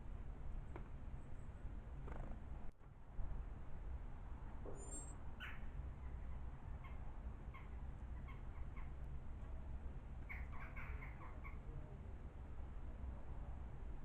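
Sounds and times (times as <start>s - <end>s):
small birds chirping: 10.2s - 11.7s.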